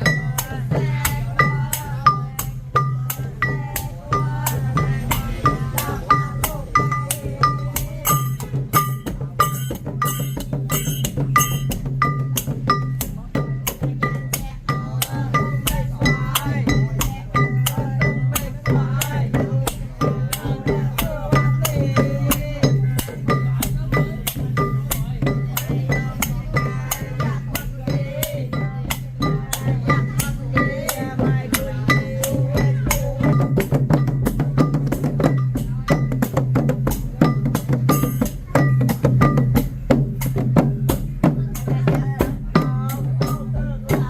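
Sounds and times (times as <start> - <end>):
drums and percussion: 0.0 - 44.0
small cymbals: 0.0 - 44.0
ringing metallic notes: 1.4 - 13.0.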